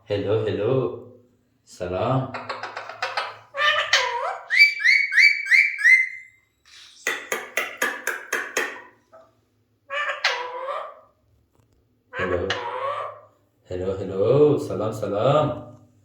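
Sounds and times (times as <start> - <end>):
parrot talking: 2.3 - 6.2, 9.8 - 11.2, 12.1 - 13.4
parrot harsh pulsed calls: 3.0 - 6.8
parrot whistles: 4.4 - 7.0.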